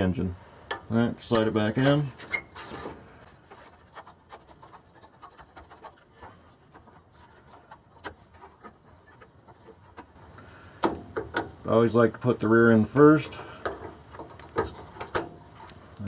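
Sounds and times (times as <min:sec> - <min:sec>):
fuel filter rubbing and scraping: 0:01.2 - 0:10.6, 0:12.2 - 0:15.9.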